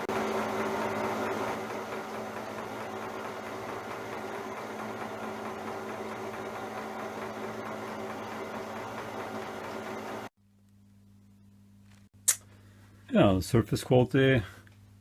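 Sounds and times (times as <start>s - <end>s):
milling machine hum: 0.0s - 10.3s.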